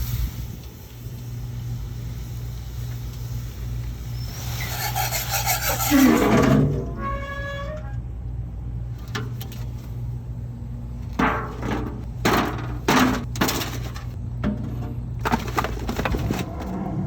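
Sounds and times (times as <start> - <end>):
steady low hum: 0.0 - 17.0
sharp knocks and crunchy strokes: 11.1 - 16.9.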